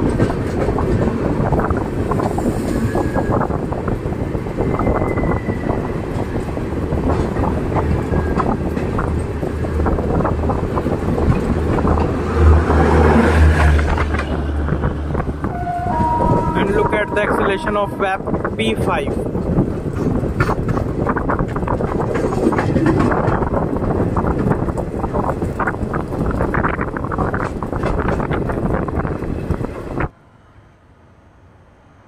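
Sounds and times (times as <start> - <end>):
train wheels clattering: 0.0 - 14.8, 19.4 - 30.0.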